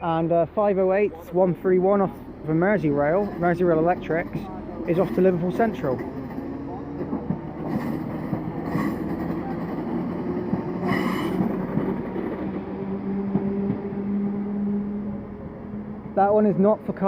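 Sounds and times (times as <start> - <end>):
train motor humming: 0.4 - 17.0
train wheels squealing: 7.7 - 9.6, 10.6 - 12.0.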